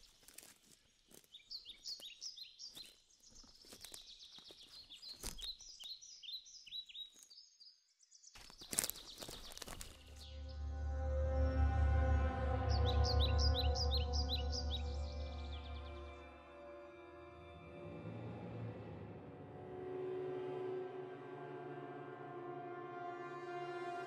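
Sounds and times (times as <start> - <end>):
songbirds singing: 0.0 - 10.9, 11.7 - 16.4
low music drone: 10.1 - 24.0.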